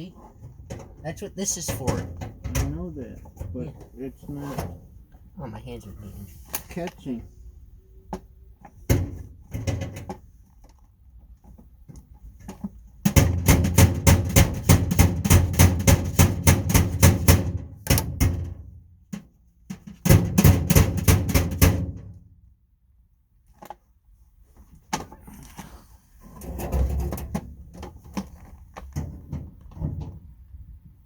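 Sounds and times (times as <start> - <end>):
rapid banging on metal tool box: 12.5 - 22.2.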